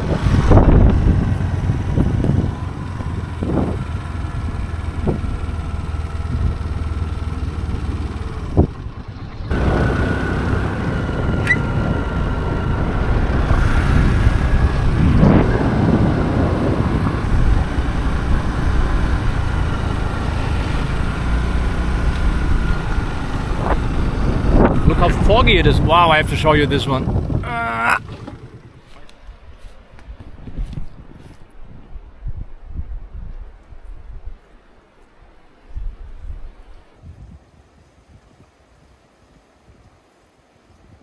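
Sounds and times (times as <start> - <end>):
motorcycle engine running: 0.0 - 29.2
wind rushing over microphone: 0.0 - 34.5, 35.2 - 39.0.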